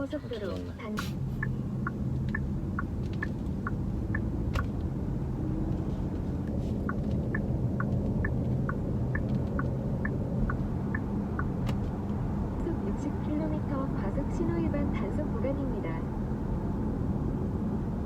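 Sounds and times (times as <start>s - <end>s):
turn signal ticking: 0.0s - 16.6s
road and engine rumble: 0.0s - 18.0s.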